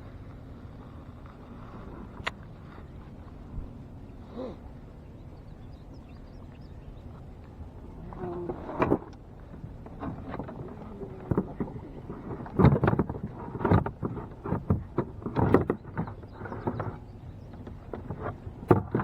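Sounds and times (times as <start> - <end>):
low steady rumble: 0.0 - 19.0
knocks and bumps on boat: 8.0 - 19.0.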